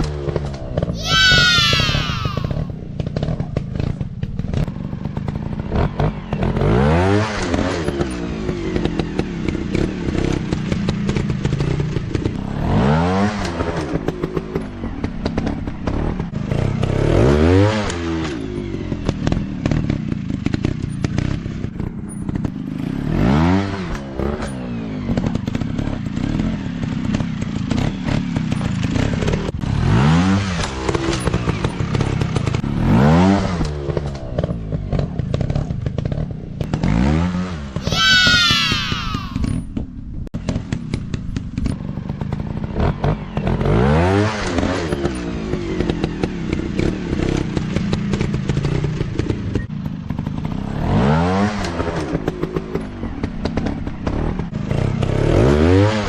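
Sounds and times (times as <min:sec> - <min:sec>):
dirt bike engines revving: 0:00.9 - 0:02.7, 0:36.8 - 0:39.5.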